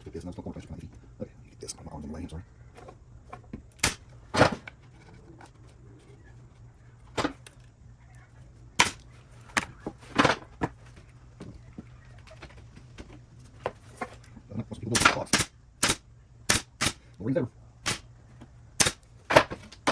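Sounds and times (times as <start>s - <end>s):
pneumatic nailer firing: 3.8s - 4.6s, 8.8s - 9.0s, 14.9s - 17.1s, 17.8s - 18.1s, 18.8s - 19.9s.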